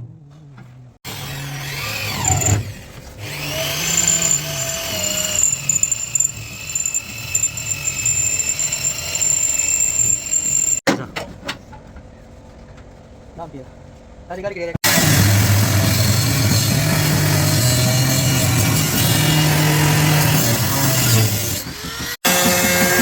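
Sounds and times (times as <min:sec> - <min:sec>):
power tool whining: 0:01.0 - 0:10.8, 0:14.8 - 0:23.0.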